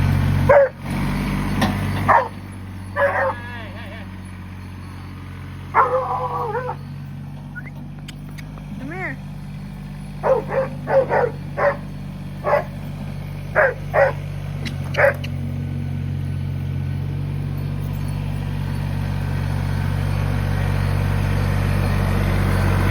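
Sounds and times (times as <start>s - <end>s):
tractor engine drone: 0.0s - 22.9s
dog barking: 0.5s - 0.8s, 2.1s - 2.4s, 3.0s - 3.4s, 5.7s - 6.8s, 10.2s - 12.8s, 13.6s - 14.2s, 15.0s - 15.3s.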